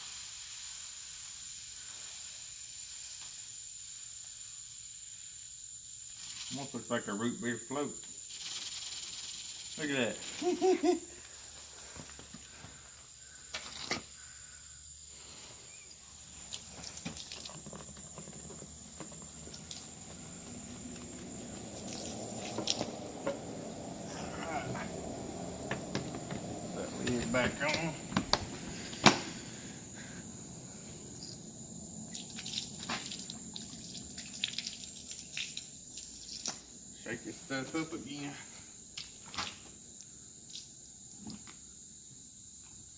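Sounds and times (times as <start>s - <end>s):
foam fizzing and crackling: 0.0s - 4.1s
foam fizzing in a bucket: 0.0s - 6.9s, 16.2s - 24.8s, 32.1s - 36.7s.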